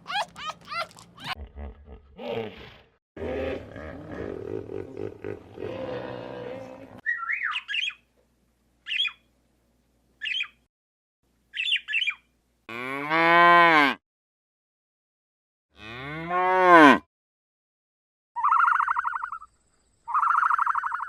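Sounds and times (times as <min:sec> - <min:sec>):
animal roar: 0:02.0 - 0:07.0
long moos: 0:03.2 - 0:07.0.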